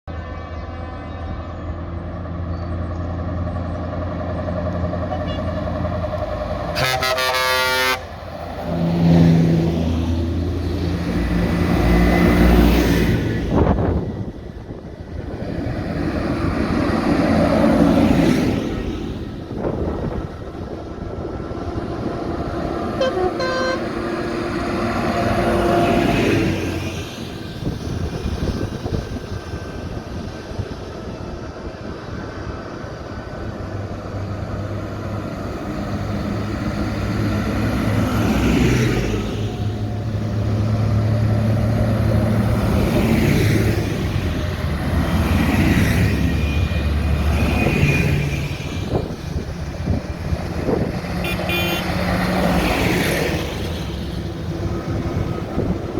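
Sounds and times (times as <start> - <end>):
tractor engines passing: 0.1 - 55.9
short horn toots: 6.8 - 8.0, 23.0 - 23.9, 51.2 - 52.0.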